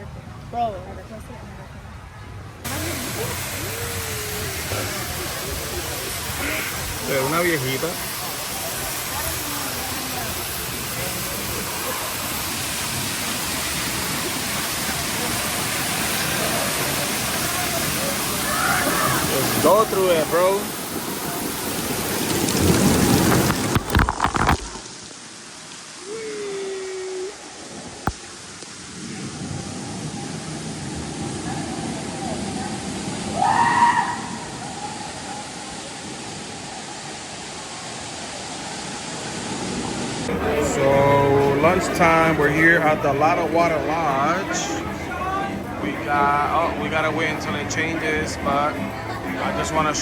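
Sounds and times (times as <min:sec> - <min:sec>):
falling splashing water: 0:02.6 - 0:50.0
distant rising cry: 0:33.3 - 0:35.6.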